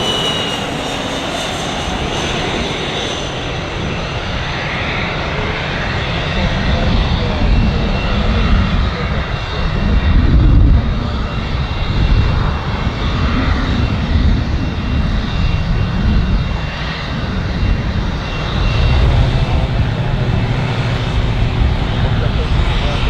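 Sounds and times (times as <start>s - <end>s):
aircraft engine rumble: 0.0s - 23.0s.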